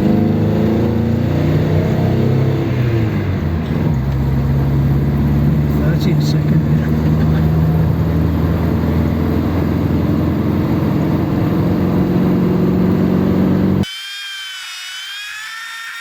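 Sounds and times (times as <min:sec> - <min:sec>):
car engine pulling: 0:00.0 - 0:13.8
road noise: 0:00.0 - 0:13.8
wavering high whine: 0:13.5 - 0:16.0.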